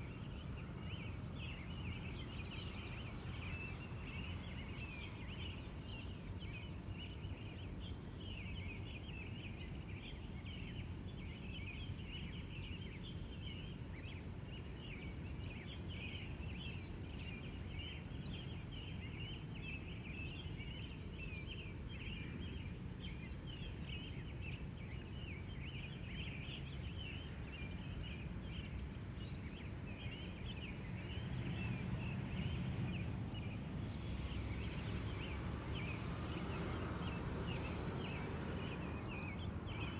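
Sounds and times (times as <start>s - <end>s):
birds chirping: 1.5s - 4.2s.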